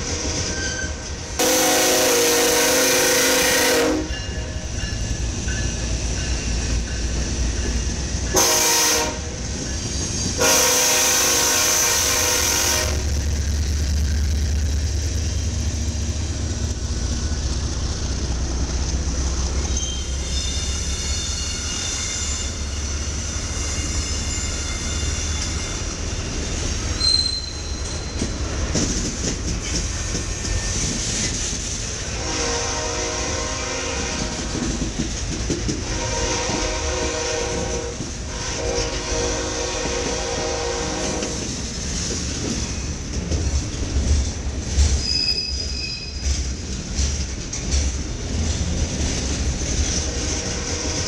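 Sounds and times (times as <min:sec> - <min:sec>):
diesel locomotive engines rumbling: 0:00.0 - 0:51.0
high wheel squeal: 0:00.4 - 0:01.1, 0:19.6 - 0:28.4, 0:45.0 - 0:46.4
train horn blasts: 0:00.8 - 0:04.3, 0:08.3 - 0:09.4, 0:10.4 - 0:13.1, 0:32.1 - 0:34.6, 0:35.8 - 0:41.5, 0:50.3 - 0:51.0.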